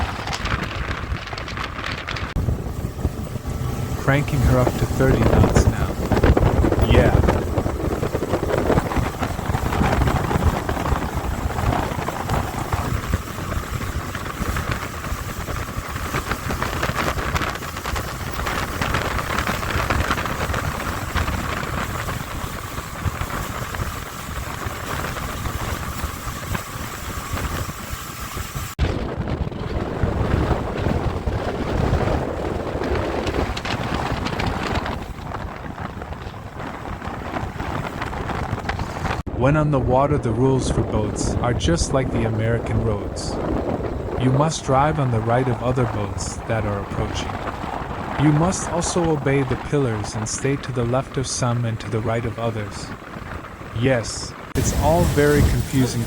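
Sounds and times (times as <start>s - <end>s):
wind buffeting microphone: 0.0s - 56.0s
outboard motor running: 2.0s - 28.8s
thin steady whine: 2.4s - 7.6s, 48.2s - 52.9s, 53.8s - 56.0s
rushing water: 53.5s - 56.0s.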